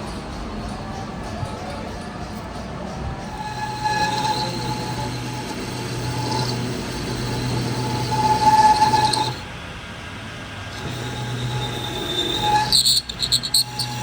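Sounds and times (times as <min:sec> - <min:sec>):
metal lathe humming: 0:00.0 - 0:14.0
ringing squeal of tool cutting: 0:02.9 - 0:09.5, 0:10.8 - 0:14.0.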